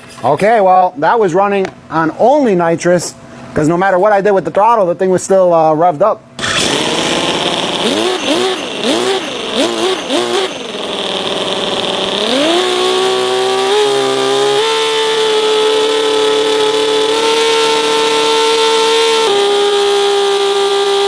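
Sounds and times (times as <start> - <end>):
model engine revving: 6.4 - 21.0.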